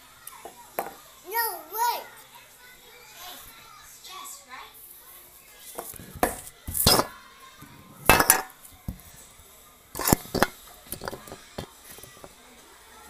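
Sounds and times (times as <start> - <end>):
hard objects clattering: 5.8 - 9.2, 10.0 - 12.3.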